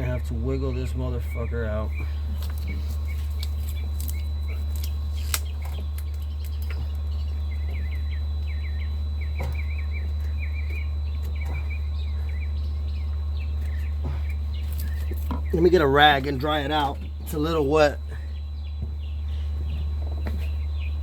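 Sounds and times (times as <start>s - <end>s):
small birds chirping: 0.0s - 21.0s
steady low hum: 0.0s - 21.0s.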